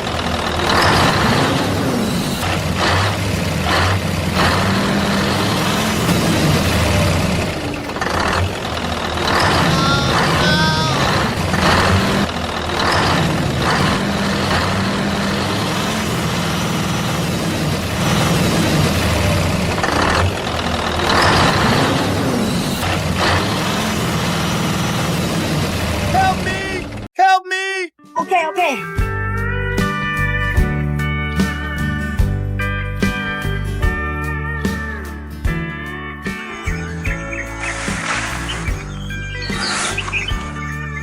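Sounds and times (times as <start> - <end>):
truck engine idling: 0.0 - 27.1, 36.2 - 41.0.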